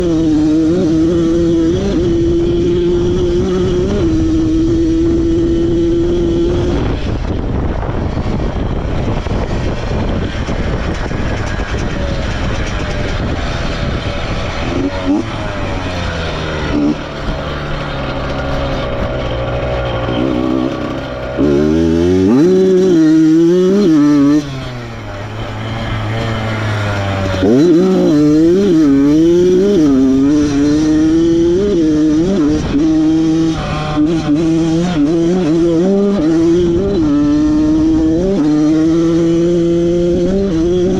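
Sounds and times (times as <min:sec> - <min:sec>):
motorcycle engine revving: 0:00.0 - 0:40.9
wind noise rush: 0:00.0 - 0:40.9.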